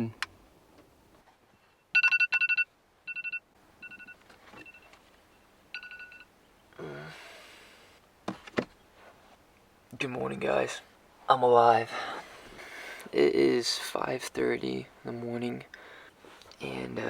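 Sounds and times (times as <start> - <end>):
short electronic beeps: 1.8 - 6.3.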